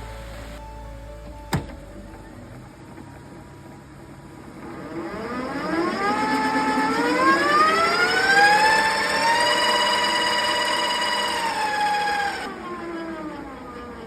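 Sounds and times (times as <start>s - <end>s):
electric motor whine rising: 4.6s - 14.0s.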